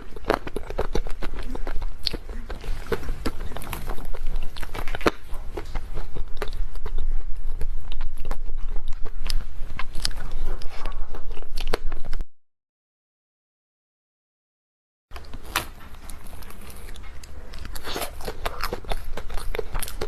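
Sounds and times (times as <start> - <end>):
crunching bites: 0.0 - 7.1, 15.2 - 20.0
chewing with wet mouth clicks: 0.0 - 12.2, 15.2 - 20.0.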